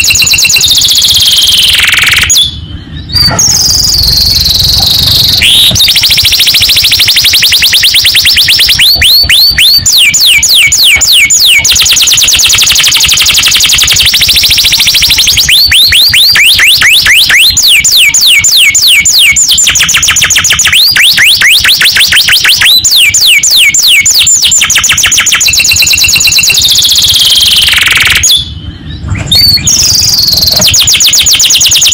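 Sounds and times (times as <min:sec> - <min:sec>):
canary singing: 0:00.0 - 0:31.9.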